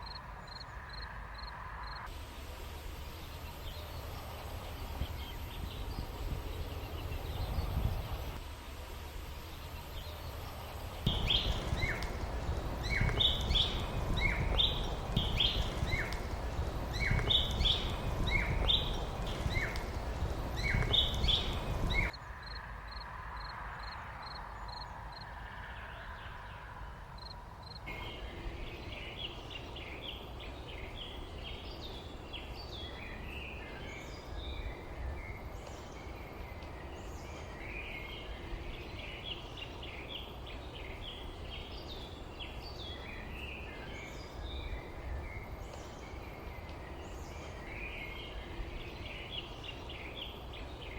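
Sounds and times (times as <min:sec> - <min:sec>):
small birds chirping and twittering: 0:00.0 - 0:50.9
steady low rumble: 0:01.3 - 0:22.2
faint high chirps: 0:10.0 - 0:23.0.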